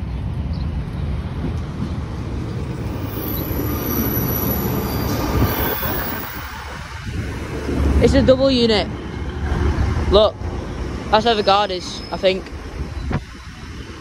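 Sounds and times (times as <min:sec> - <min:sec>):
train engine and wheels rumbling: 0:00.0 - 0:14.0
high brake squeal: 0:02.5 - 0:06.8, 0:11.4 - 0:13.7.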